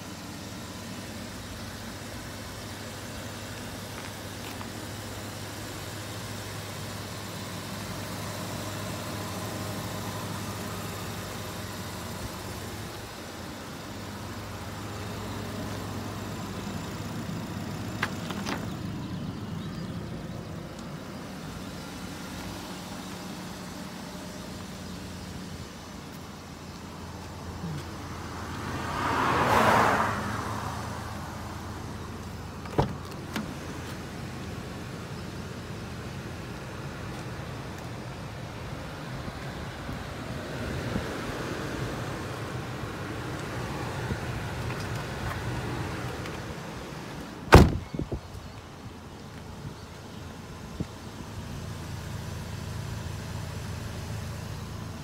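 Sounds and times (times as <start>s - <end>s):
car engine idling: 0.0s - 55.0s
car door latch click: 32.6s - 33.5s, 47.5s - 47.9s.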